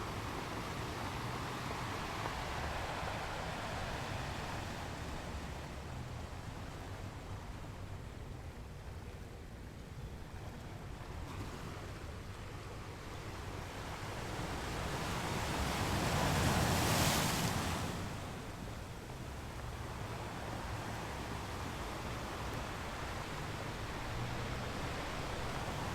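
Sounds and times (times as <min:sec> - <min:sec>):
ocean surf breaking: 0:00.0 - 0:06.1, 0:14.1 - 0:25.9.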